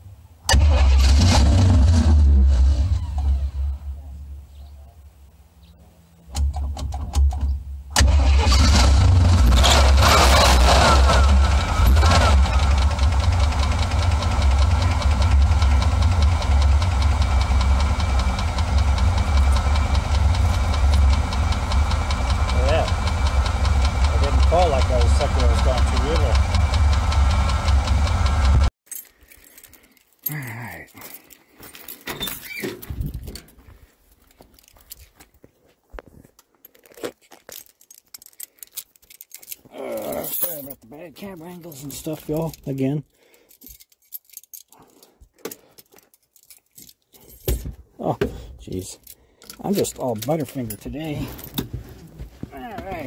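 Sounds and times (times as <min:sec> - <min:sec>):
engine idling rumble: 0:06.3 - 0:28.7
fast regular engine ticking: 0:08.0 - 0:28.7
clicks and rattles of handling: 0:31.0 - 0:35.3, 0:36.0 - 0:47.8, 0:48.8 - 0:53.0.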